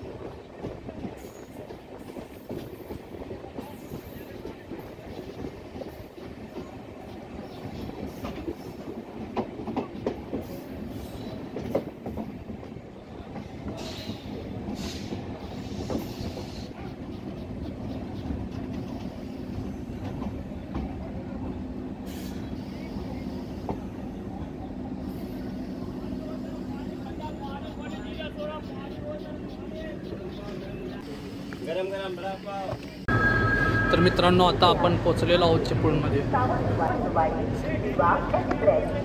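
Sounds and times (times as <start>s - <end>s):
train rumbling on track: 0.0s - 39.0s
high-pitched wheel squeals: 33.1s - 34.4s.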